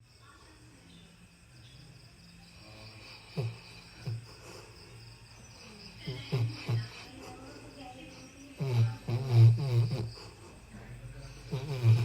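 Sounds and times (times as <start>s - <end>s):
crickets chirping: 0.0s - 12.0s
dog snoring: 2.5s - 12.0s.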